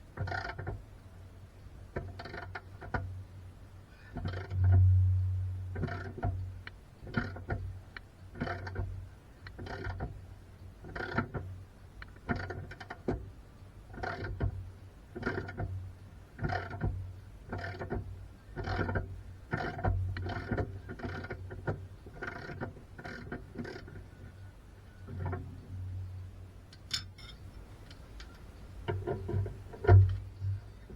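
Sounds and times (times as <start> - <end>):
steady low hum: 3.1 - 9.6, 22.9 - 30.9.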